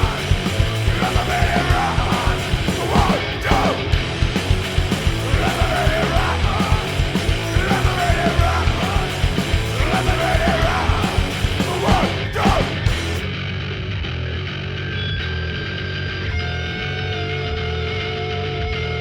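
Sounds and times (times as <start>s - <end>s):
distorted guitar: 0.0s - 19.0s
punk rock song: 0.0s - 19.0s
person yelling vocals: 11.7s - 12.8s.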